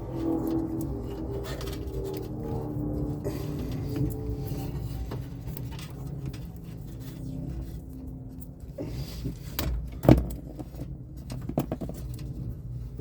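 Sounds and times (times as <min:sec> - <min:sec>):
steady low hum: 0:00.0 - 0:13.0
handling clicks and knocks: 0:09.6 - 0:12.6.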